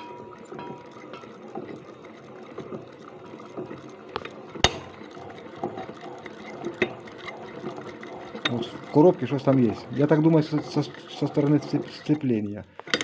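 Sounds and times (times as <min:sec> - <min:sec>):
motorcycle engine turned over by hand: 0:12.8 - 0:13.0.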